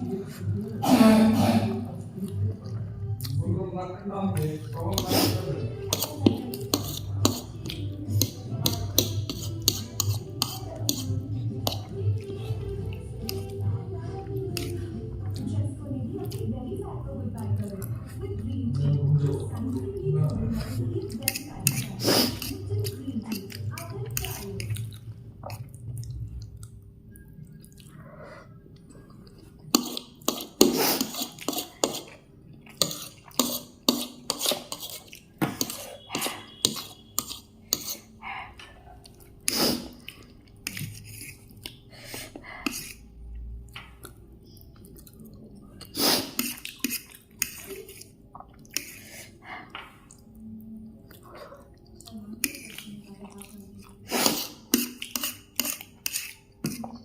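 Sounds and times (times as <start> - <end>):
wet eating sounds: 0.0 - 3.5, 4.4 - 57.0
cutlery clinking against a dish: 5.9 - 11.9, 29.7 - 38.8, 54.1 - 56.9.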